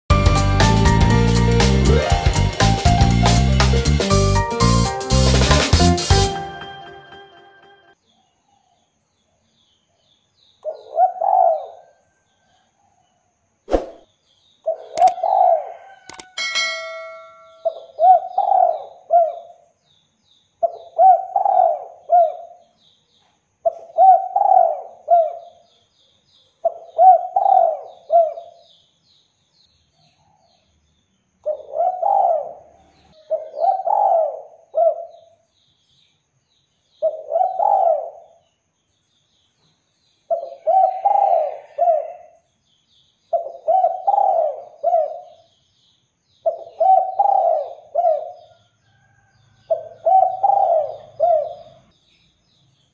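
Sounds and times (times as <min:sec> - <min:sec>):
small birds chirping: 0:08.0 - 0:52.9
dove cooing: 0:10.7 - 0:11.9, 0:14.7 - 0:15.9, 0:18.0 - 0:19.5, 0:20.6 - 0:22.6, 0:23.7 - 0:25.5, 0:26.7 - 0:28.5, 0:31.5 - 0:35.2, 0:37.0 - 0:38.3, 0:40.3 - 0:42.2, 0:43.4 - 0:45.4, 0:46.5 - 0:48.4, 0:49.7 - 0:51.8.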